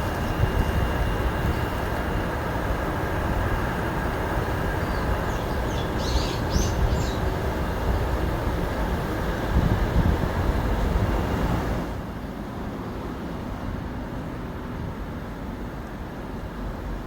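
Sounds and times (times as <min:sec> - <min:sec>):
bird chirping: 0:04.8 - 0:07.2.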